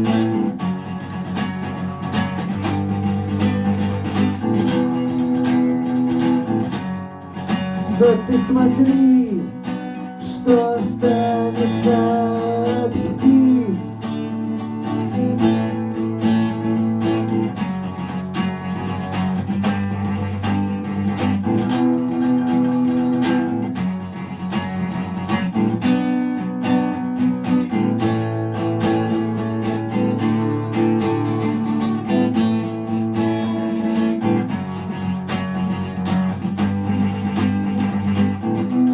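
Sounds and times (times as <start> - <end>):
acoustic guitar strumming: 0.0 - 38.9
person singing: 7.8 - 14.3.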